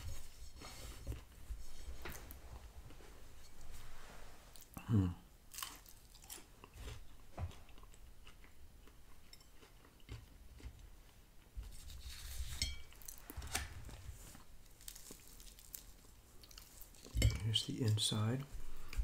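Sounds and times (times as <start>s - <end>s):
person chewing crunchy food: 5.5s - 10.9s, 14.6s - 17.2s.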